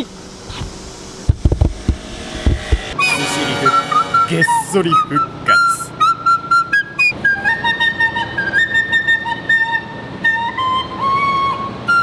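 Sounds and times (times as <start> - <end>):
recorder playing melody: 3.0 - 11.0.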